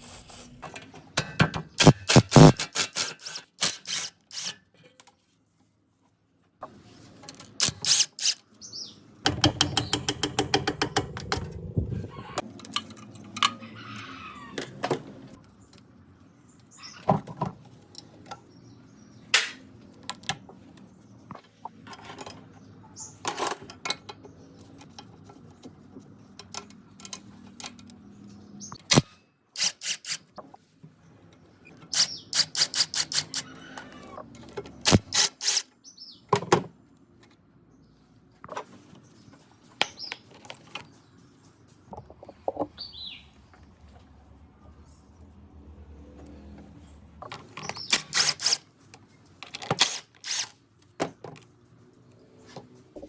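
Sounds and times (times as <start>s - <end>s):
hand tools clicking on metal: 7.5s - 8.4s, 31.9s - 33.9s
tapping on metal: 9.3s - 11.5s.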